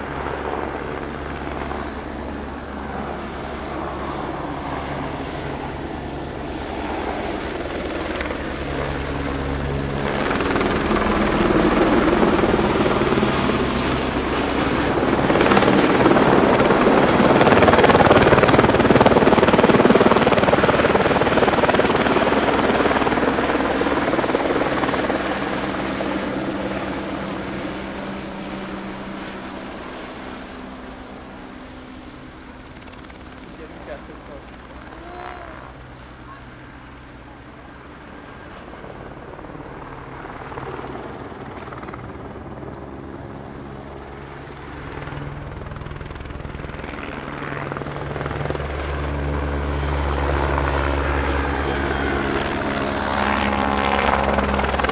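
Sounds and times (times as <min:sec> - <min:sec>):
aircraft flying past: 0:00.0 - 0:42.1.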